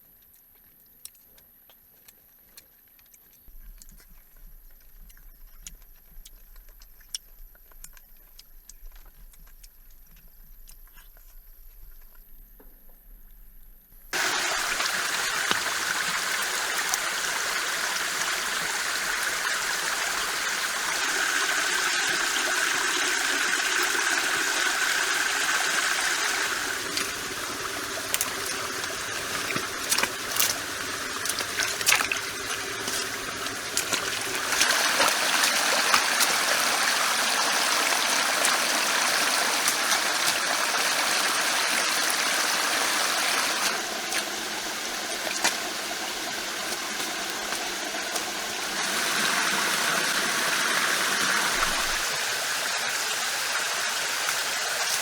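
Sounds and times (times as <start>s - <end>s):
stream water trickling: 14.1s - 55.0s.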